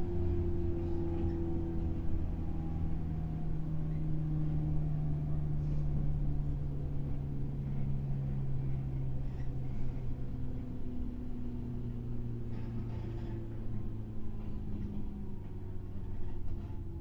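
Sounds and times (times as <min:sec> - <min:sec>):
wheels rumbling on track: 0:00.0 - 0:17.0.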